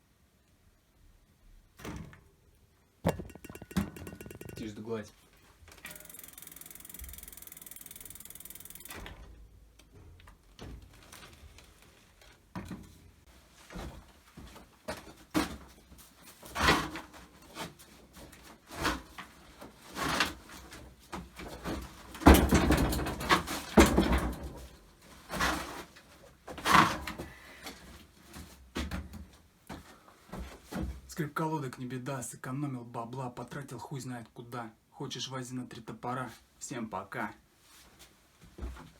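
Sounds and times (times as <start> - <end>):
bicycle parts clicking and knocking: 3.1 - 4.7, 5.9 - 9.0.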